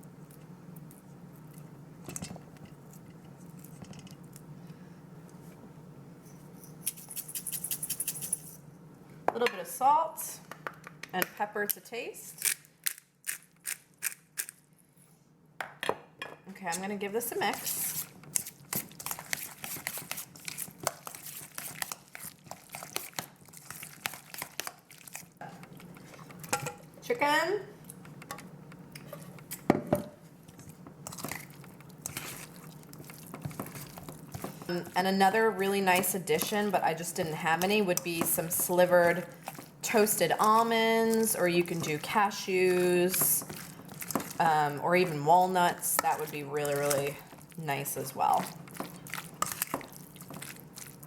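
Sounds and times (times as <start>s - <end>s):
wet squishing: 17.8s - 26.0s, 30.5s - 34.7s, 39.0s - 47.6s, 48.2s - 51.0s.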